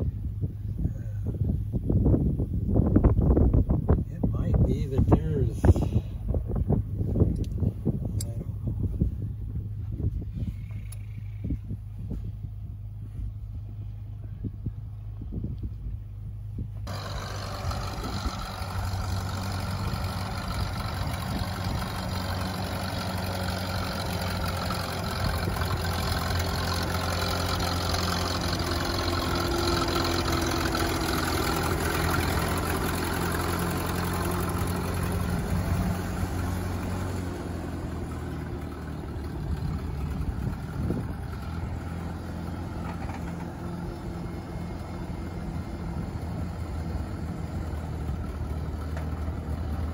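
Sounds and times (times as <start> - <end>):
tractor engine running: 0.0 - 49.9.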